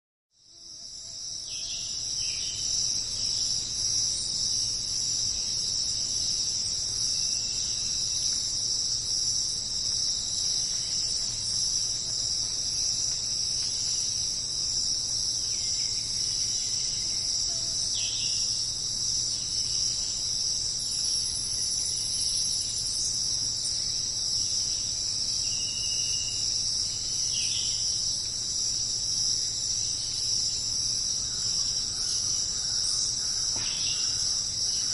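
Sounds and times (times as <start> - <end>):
crickets chirping: 0.4 - 34.9.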